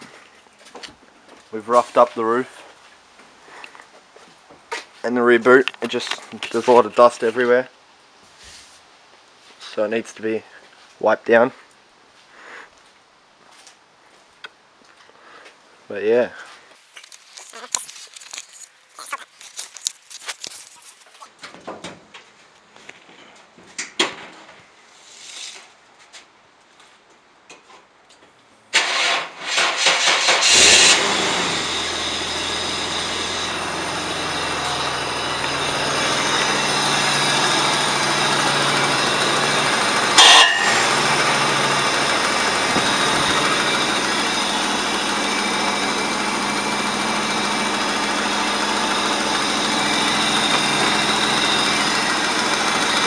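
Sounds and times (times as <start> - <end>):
engine starter cranking: 28.8 - 53.0
car engine idling: 30.2 - 53.0.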